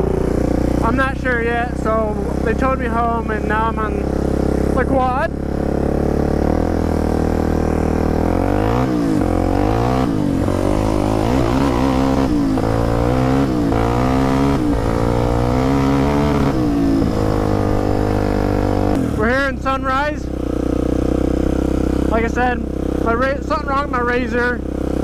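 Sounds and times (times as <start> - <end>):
quad engine revving: 0.0 - 25.0.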